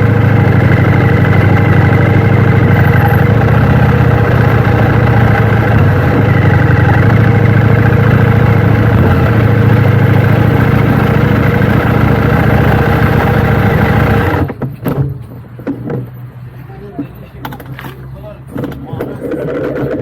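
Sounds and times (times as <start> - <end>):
motorcycle engine idling: 0.0 - 14.5.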